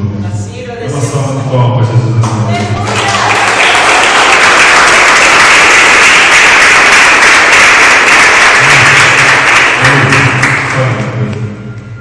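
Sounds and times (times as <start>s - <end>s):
audience applauding: 2.6s - 11.4s.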